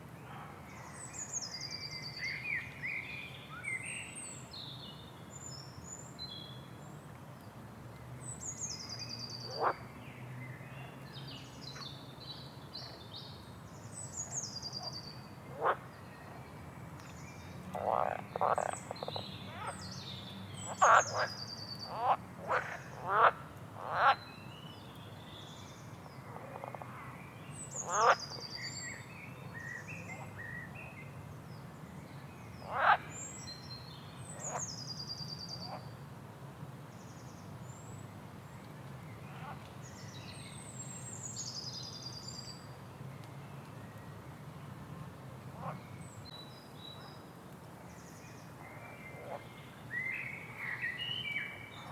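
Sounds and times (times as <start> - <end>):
songbirds singing: 8.1 - 36.0, 36.9 - 51.9
frogs croaking: 9.5 - 9.8, 15.5 - 15.9, 17.8 - 19.7, 20.7 - 24.2, 27.8 - 28.2, 32.7 - 33.1.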